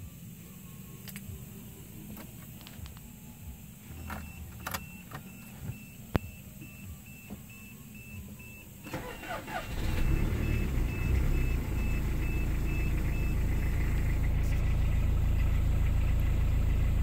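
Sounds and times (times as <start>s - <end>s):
car warning chime beeping: 0.8s - 14.8s
clicks and knocks of car controls: 4.0s - 6.3s.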